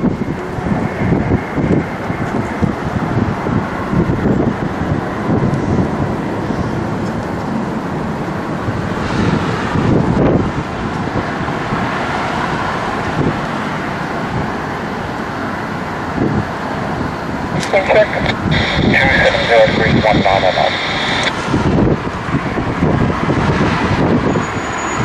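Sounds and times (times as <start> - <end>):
wind buffeting microphone: 0.0 - 14.6, 16.0 - 24.5.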